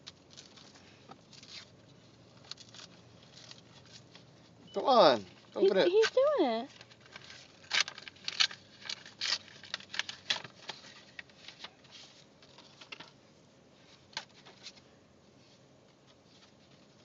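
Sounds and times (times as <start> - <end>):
wrapping paper crinkling and tearing: 0.0 - 13.1.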